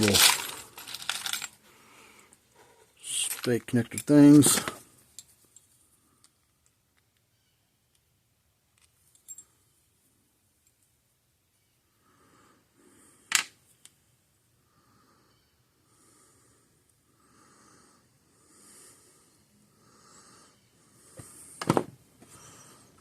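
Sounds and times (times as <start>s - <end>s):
soft breathing close to microphone: 14.6s - 21.6s, 22.2s - 23.0s.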